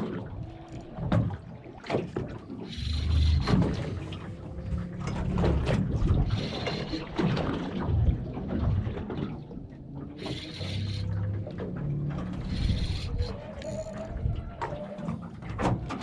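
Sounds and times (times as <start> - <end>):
water lapping against hull: 0.0 - 16.0
wind on microphone: 2.2 - 11.2, 12.1 - 16.0.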